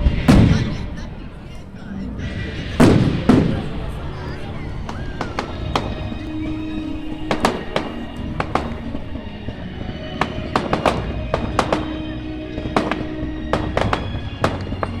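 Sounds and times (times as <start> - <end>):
background music: 0.0 - 15.0
fireworks bangs: 0.0 - 15.0.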